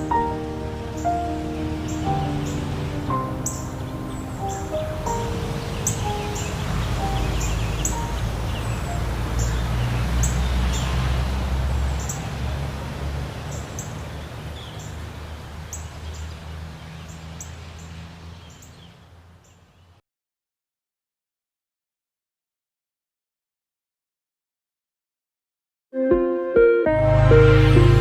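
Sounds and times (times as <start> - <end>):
small birds chirping: 0.0 - 20.0
steady outdoor noise: 0.0 - 20.0.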